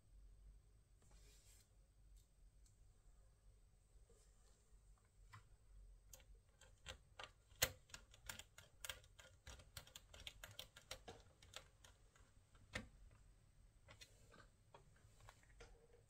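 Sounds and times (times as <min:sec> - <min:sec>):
laptop keyboard typing: 0:06.1 - 0:12.9.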